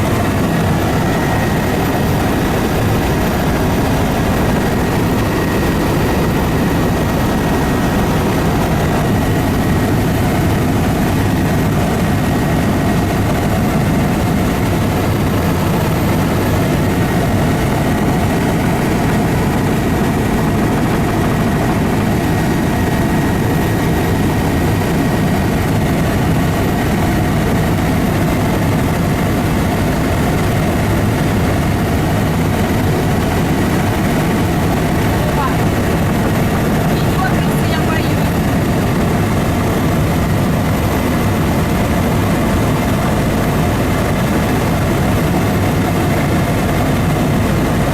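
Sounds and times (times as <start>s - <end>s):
aircraft engine drone: 0.0s - 47.9s.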